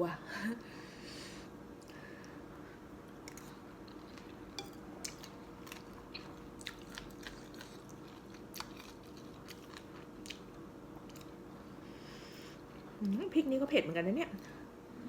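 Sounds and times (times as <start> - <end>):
chewing noodles: 3.2 - 11.4.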